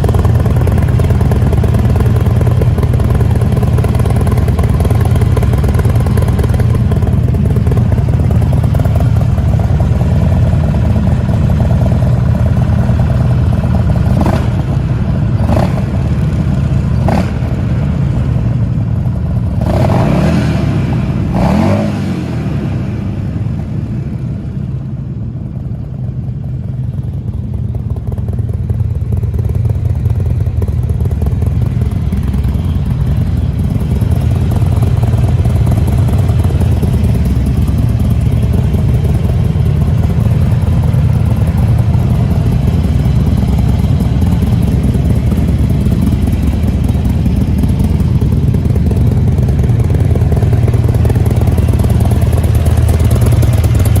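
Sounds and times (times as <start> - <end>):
motorcycle engine running: 0.0 - 54.0
motorcycle throttle blips: 26.9 - 54.0.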